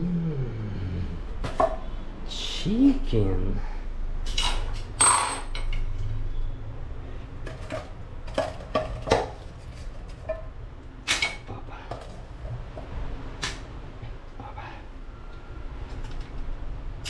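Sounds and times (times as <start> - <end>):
steady low rumble: 0.0 - 4.3, 9.4 - 17.0.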